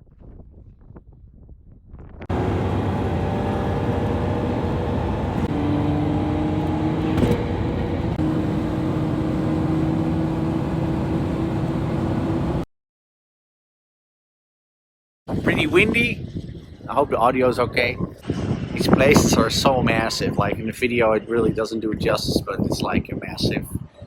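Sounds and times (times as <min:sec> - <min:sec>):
wind gusts on microphone: 0:00.0 - 0:09.3, 0:15.3 - 0:24.0
car engine drone: 0:02.3 - 0:12.6
tyre and road noise: 0:02.3 - 0:12.6.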